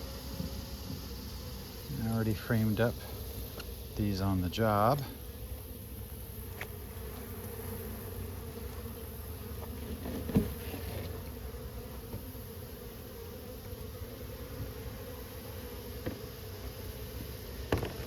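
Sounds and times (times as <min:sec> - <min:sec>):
honeybees buzzing: 0:00.0 - 0:18.0.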